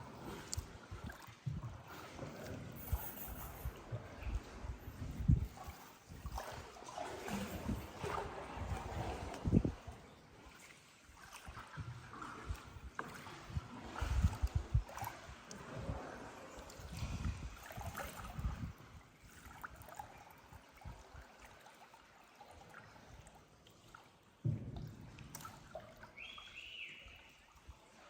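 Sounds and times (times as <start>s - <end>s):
water trickling and lapping: 0.0s - 28.0s.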